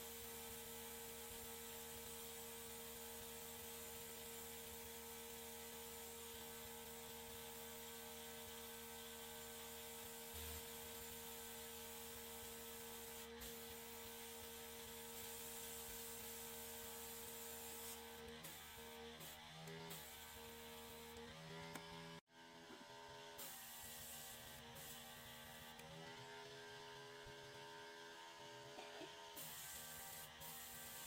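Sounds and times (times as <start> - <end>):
hiss: 29.4 - 31.0.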